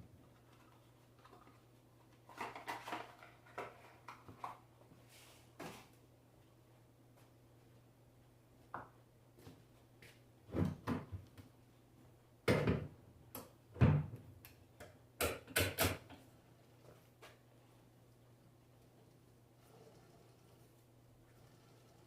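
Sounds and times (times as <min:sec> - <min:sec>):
objects knocking on workbench: 0:12.5 - 0:12.9
faint low hum: 0:16.0 - 0:22.0.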